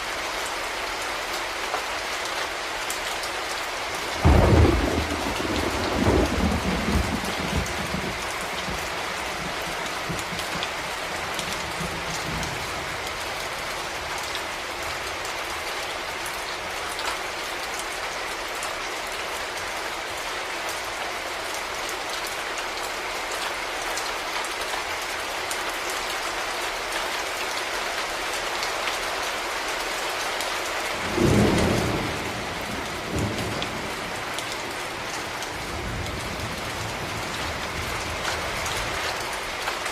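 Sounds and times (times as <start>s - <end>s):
heavy rain falling: 0.0s - 39.9s
thunder rumbling: 4.2s - 10.6s, 31.0s - 38.9s.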